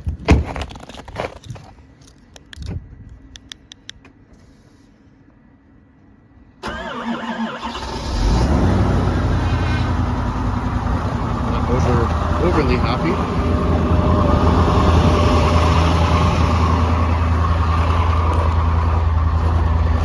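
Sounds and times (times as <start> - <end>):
diesel engine cranking and idling: 6.6 - 20.0.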